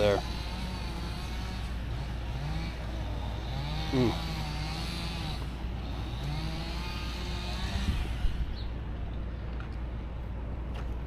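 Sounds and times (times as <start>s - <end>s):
motor revving: 0.0s - 8.7s
low engine rumble: 0.0s - 11.0s.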